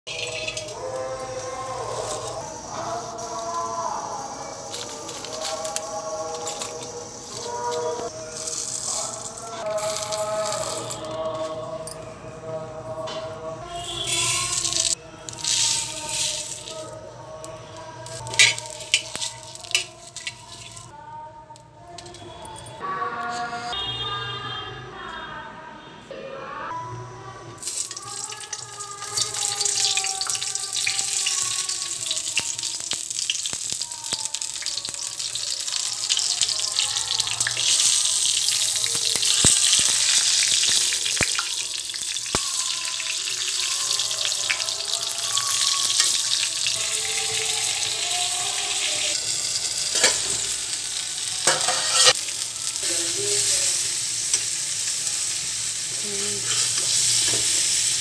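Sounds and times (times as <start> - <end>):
vegetables sizzling in hot oil: 0.1 - 10.6, 13.8 - 17.0, 18.0 - 20.9, 27.6 - 58.0.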